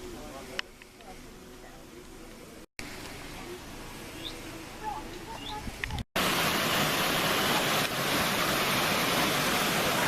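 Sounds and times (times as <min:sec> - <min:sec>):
bird chirps: 0:04.1 - 0:04.5
falling water rushing: 0:06.2 - 0:10.0.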